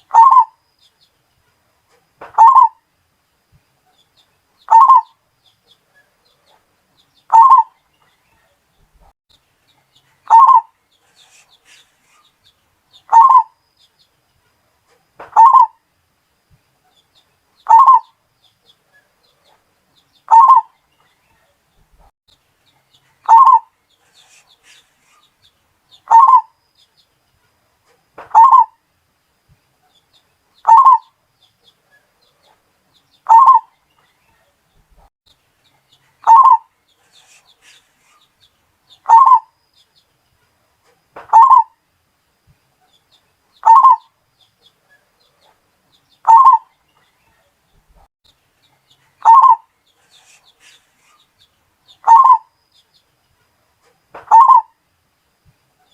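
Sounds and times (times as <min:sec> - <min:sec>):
dove cooing: 0:00.0 - 0:00.6, 0:02.3 - 0:02.8, 0:04.7 - 0:05.1, 0:07.3 - 0:07.7, 0:10.3 - 0:11.4, 0:13.1 - 0:13.5, 0:15.3 - 0:15.8, 0:17.7 - 0:18.1, 0:20.3 - 0:20.7, 0:23.3 - 0:24.8, 0:26.1 - 0:26.5, 0:28.3 - 0:28.7, 0:30.6 - 0:31.1, 0:33.3 - 0:33.7, 0:36.2 - 0:37.8, 0:39.0 - 0:39.5, 0:41.3 - 0:41.7, 0:43.6 - 0:44.1, 0:46.2 - 0:46.7, 0:49.2 - 0:49.6, 0:52.0 - 0:52.5, 0:54.3 - 0:54.7.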